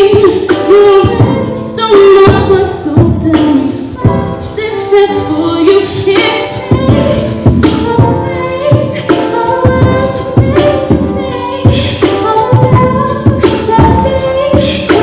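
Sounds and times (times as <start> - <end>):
person singing: 0.0 - 15.0
beatboxing: 5.4 - 15.0.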